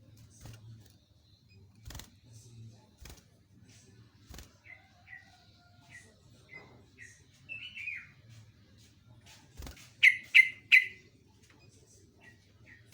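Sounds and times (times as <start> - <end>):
loud sharp bird notes: 10.0 - 11.0.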